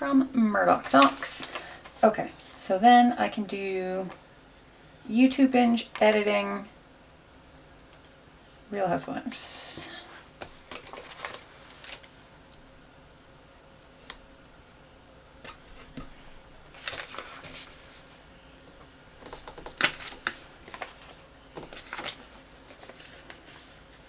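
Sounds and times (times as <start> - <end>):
paper rustling: 0.6 - 2.6, 10.4 - 12.2, 15.4 - 18.3, 19.2 - 24.0.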